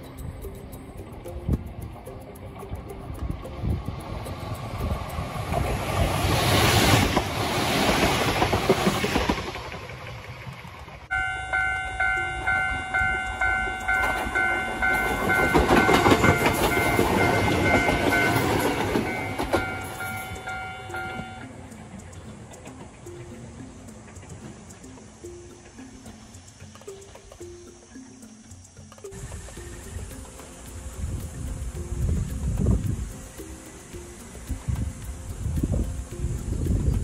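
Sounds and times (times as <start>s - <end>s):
electric train passing: 0.0s - 37.0s
wheels clattering over rail joints: 1.1s - 27.5s
level-crossing bell ringing: 11.1s - 21.7s.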